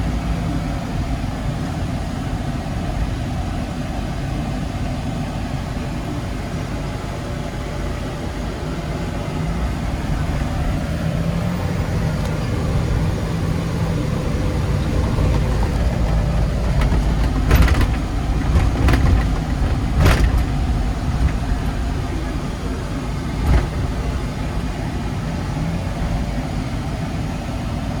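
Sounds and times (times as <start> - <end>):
truck engine and road drone: 0.0 - 28.0
short knocks: 14.2 - 22.0.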